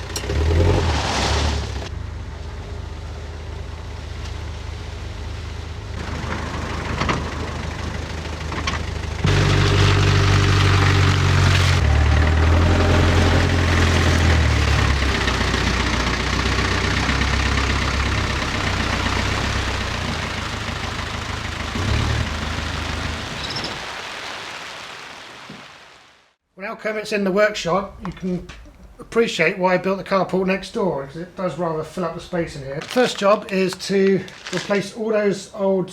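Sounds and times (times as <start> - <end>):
vehicle engine under load: 0.0 - 24.0.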